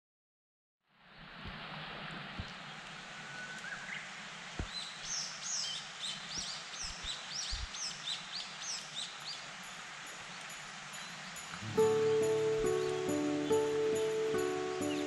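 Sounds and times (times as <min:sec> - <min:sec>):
steady outdoor hiss: 0:00.9 - 0:15.0
songbird singing whistled notes: 0:03.2 - 0:04.0, 0:04.6 - 0:09.5, 0:10.3 - 0:15.0.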